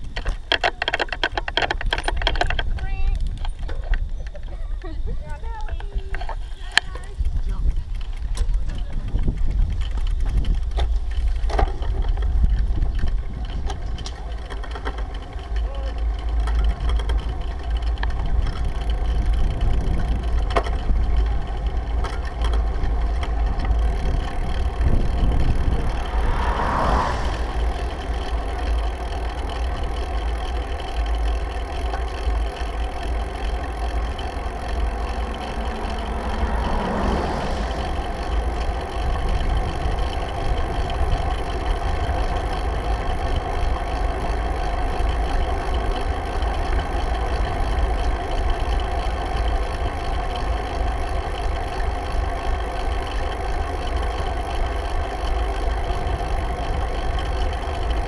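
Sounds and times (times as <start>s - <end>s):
wind rumble on microphone: 1.1s - 15.4s, 16.5s - 31.1s, 32.4s - 45.2s.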